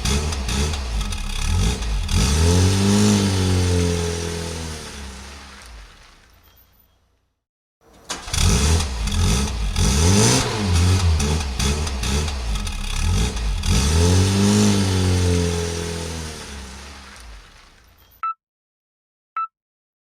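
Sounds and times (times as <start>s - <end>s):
engine revving: 0.0s - 6.1s, 8.1s - 17.7s.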